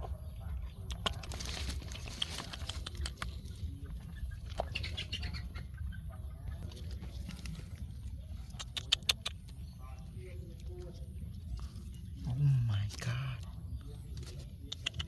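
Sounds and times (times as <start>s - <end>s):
dry litter rustling and crackling: 1.1s - 3.0s.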